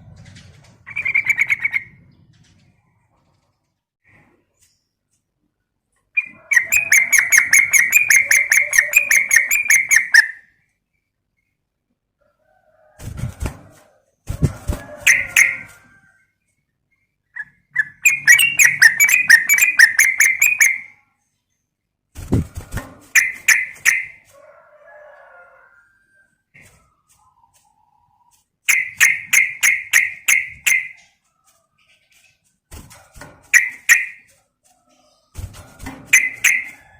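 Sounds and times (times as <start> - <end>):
bird chattering calls: 6.2 - 10.4, 17.4 - 20.9.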